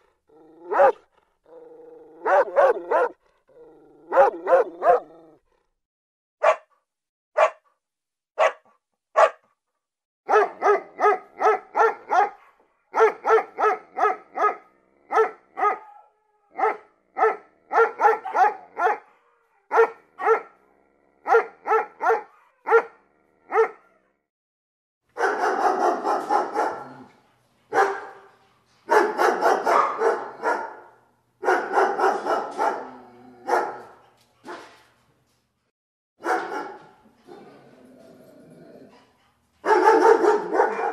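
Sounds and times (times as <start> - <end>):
puppy barking: 0.6 - 1.1, 2.2 - 3.2, 4.1 - 5.2, 6.4 - 6.8, 7.4 - 7.6, 8.4 - 9.5, 10.3 - 20.6, 21.2 - 24.0, 25.2 - 27.1, 27.7 - 28.3, 28.9 - 34.8, 36.2 - 37.0, 39.6 - 40.9.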